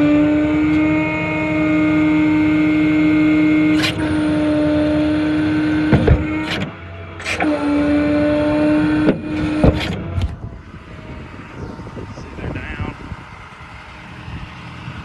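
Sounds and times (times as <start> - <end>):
diesel engine idling: 0.0 - 15.0
hydraulic pump whine: 0.0 - 15.0
sharp knocks: 5.3 - 10.4.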